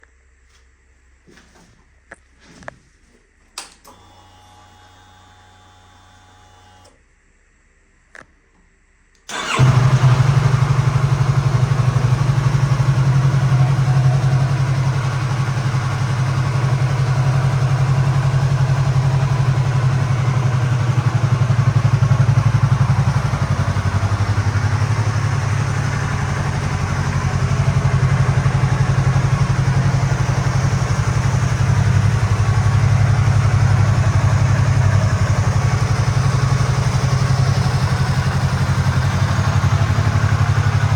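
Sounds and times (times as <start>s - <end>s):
motorcycle engine starting and idling: 9.2s - 40.9s.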